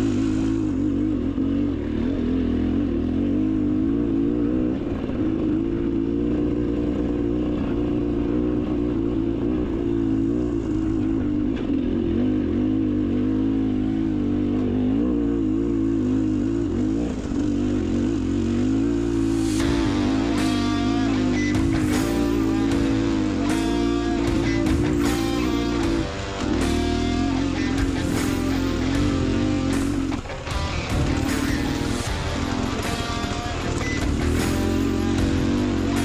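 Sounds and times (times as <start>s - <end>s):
two-stroke dirt bike engine revving: 0.0s - 36.0s.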